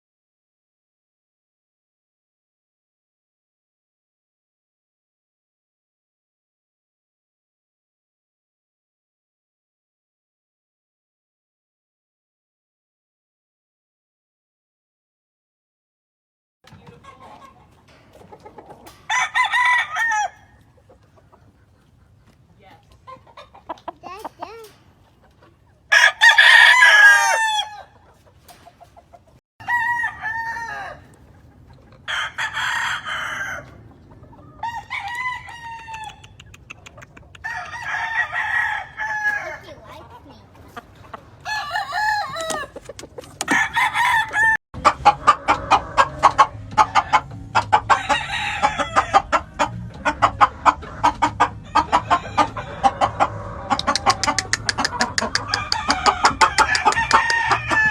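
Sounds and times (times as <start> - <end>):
roosters crowing: 17.0 - 21.0, 25.9 - 28.8, 29.6 - 36.5, 37.4 - 40.0, 40.7 - 57.9.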